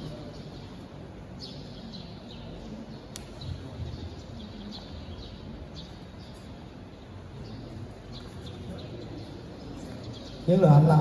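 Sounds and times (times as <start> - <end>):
low hall hum: 0.0 - 11.0
small birds chirping: 0.0 - 11.0
sharp click: 3.1 - 3.4.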